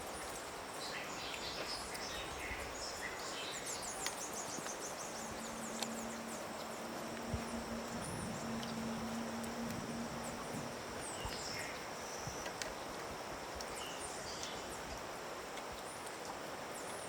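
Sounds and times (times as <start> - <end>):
small birds chirping: 0.1 - 12.8
steady low hum: 2.3 - 13.1.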